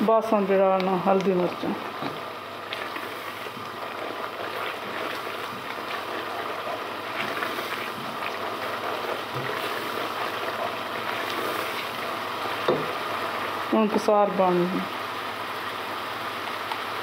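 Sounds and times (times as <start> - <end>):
sauce sizzling and bubbling in a pot: 0.0 - 17.0
spoon stirring and scraping a pan: 1.3 - 12.0.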